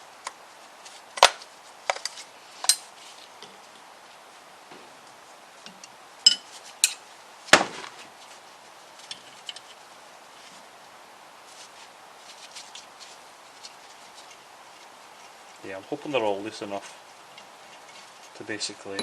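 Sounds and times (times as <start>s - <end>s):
metal tools clinking on engine block: 6.3s - 7.0s.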